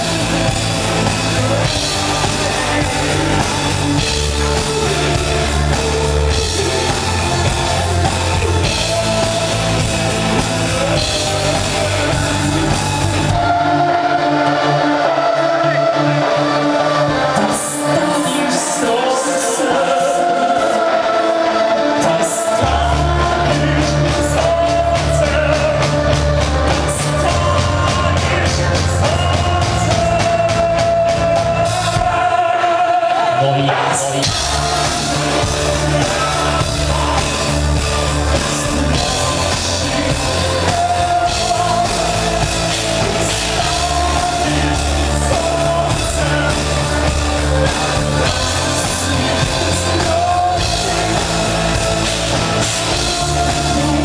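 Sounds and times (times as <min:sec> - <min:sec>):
rock band with singing: 0:00.0 - 0:54.0.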